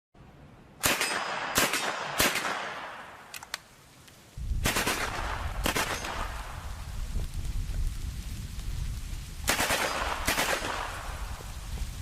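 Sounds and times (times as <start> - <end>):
single gunshots with echo: 0.8 - 3.3, 9.5 - 11.1.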